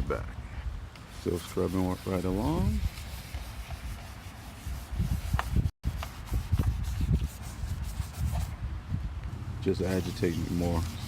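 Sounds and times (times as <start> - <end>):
wind buffeting microphone: 4.6 - 11.0.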